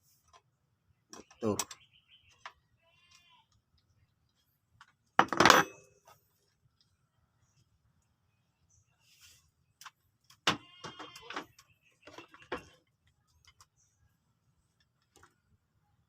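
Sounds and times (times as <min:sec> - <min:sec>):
metal knocks and clinks: 0:05.2 - 0:06.0.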